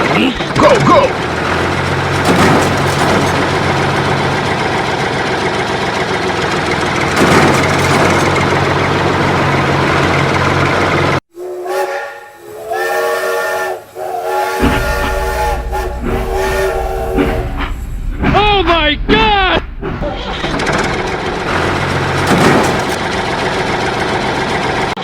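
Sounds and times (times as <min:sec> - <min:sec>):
loud steady hissing: 0:11.4 - 0:18.2
whistle chord blasts: 0:11.7 - 0:17.7
low hum: 0:14.3 - 0:24.8.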